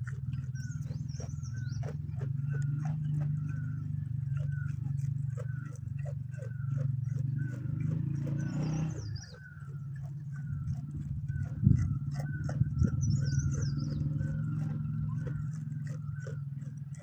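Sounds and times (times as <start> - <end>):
farm animal calls: 0.0 - 17.0
steady low hum: 0.0 - 17.0.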